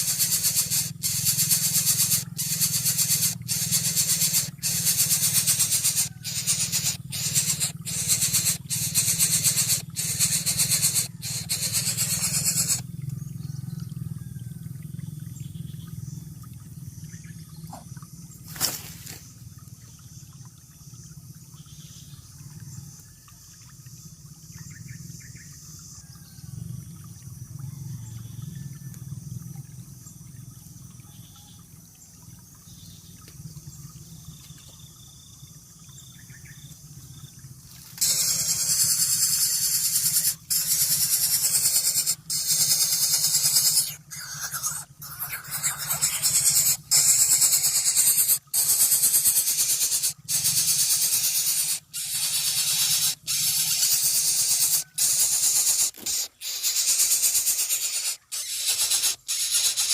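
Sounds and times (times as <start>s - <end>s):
loud hissing noise: 0.0s - 12.8s, 38.0s - 59.9s.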